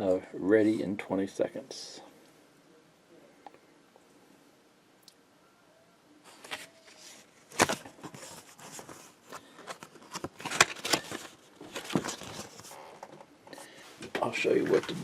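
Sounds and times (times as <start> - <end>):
packaging crinkling and rustling: 6.3 - 13.3.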